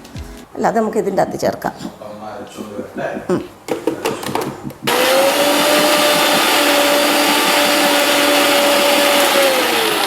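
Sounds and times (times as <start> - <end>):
electric mixer grinder whining: 4.9 - 10.0.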